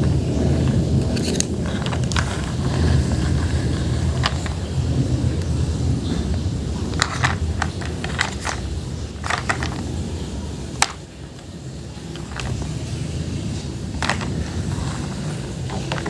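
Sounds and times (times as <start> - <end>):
steady low rumble: 0.0 - 16.0
sharp clicks and knocks: 7.0 - 9.9.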